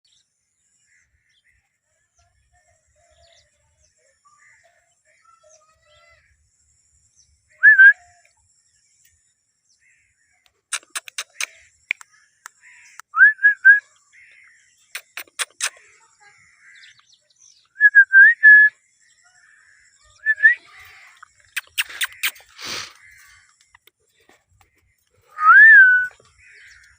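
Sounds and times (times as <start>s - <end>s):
parrot clicking: 10.7s - 12.1s, 15.0s - 15.8s, 21.5s - 22.4s
parrot whistling: 20.2s - 20.6s, 25.4s - 26.1s.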